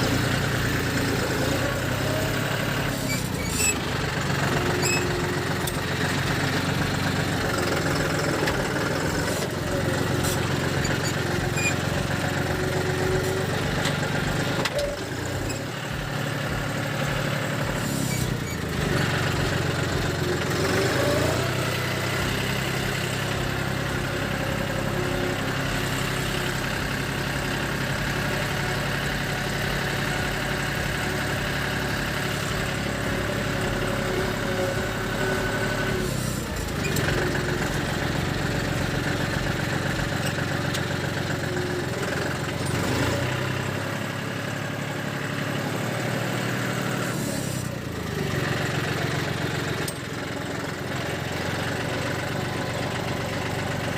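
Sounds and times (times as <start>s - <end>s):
tractor diesel engine idling: 0.0s - 53.9s.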